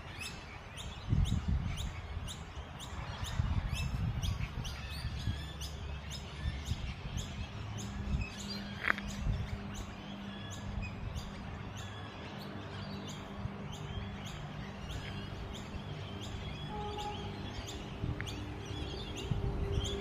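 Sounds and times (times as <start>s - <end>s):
birds chirping and whistling: 0.0s - 20.0s.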